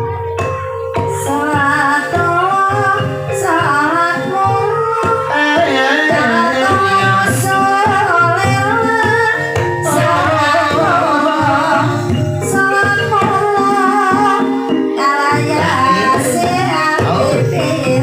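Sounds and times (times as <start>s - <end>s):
drum strokes: 0.0s - 18.0s
gamelan accompaniment: 0.0s - 18.0s
woman singing: 1.1s - 18.0s.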